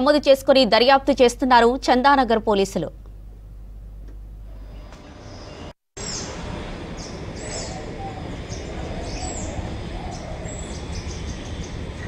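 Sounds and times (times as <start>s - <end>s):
low outdoor rumble: 0.0s - 12.0s
birds chirping: 4.6s - 12.0s.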